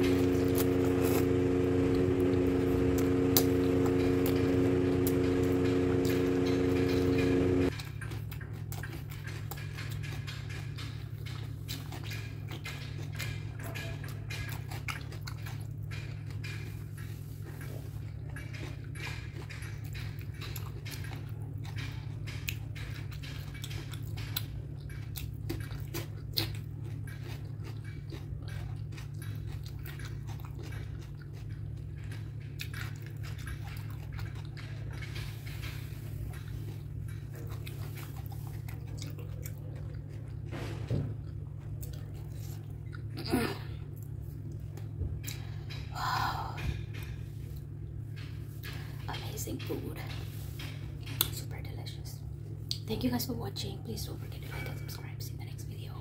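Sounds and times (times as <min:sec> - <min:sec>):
steady low hum: 0:00.0 - 0:13.4
person chewing: 0:00.0 - 0:45.9.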